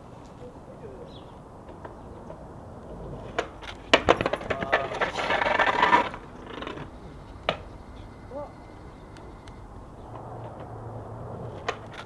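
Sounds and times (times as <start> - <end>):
skateboard wheels rolling on concrete: 0.0 - 12.0
skateboard knocks: 1.6 - 10.8.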